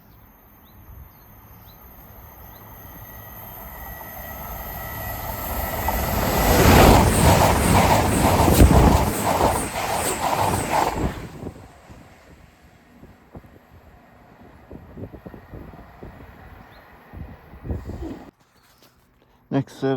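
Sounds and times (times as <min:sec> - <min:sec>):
passenger train rumbling past: 0:00.1 - 0:18.3
train wheels clattering on rails: 0:03.4 - 0:11.8.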